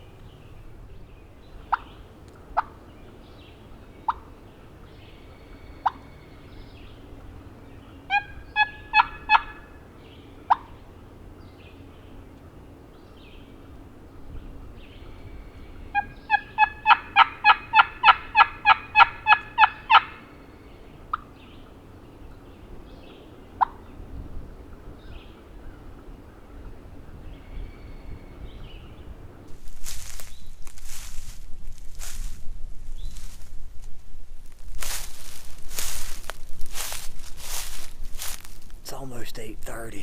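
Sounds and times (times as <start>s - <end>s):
turkey call clucks: 1.6s - 2.9s, 4.0s - 4.8s, 5.4s - 6.4s, 7.2s - 10.9s, 15.5s - 20.4s, 21.0s - 21.4s, 23.5s - 23.9s
turkey call yelps: 1.7s - 2.0s, 5.8s - 6.2s, 7.9s - 10.8s, 15.5s - 20.4s, 23.6s - 23.9s.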